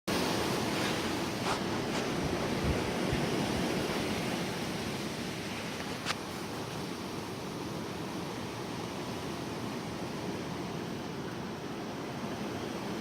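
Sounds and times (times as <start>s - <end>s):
wind buffeting microphone: 0.1s - 8.5s
gusty wind: 0.1s - 13.0s
light rain: 0.1s - 13.0s.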